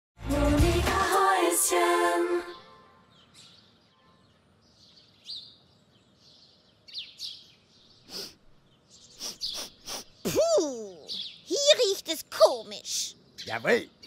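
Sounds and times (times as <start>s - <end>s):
short bird chirps: 6.8s - 10.4s.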